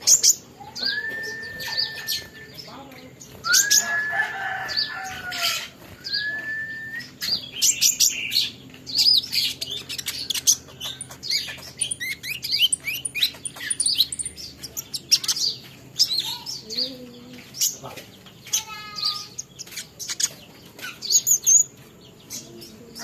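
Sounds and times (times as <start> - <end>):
sunbird twittering: 0.0 - 23.0
bird whistled notes: 0.2 - 2.7, 3.4 - 8.2.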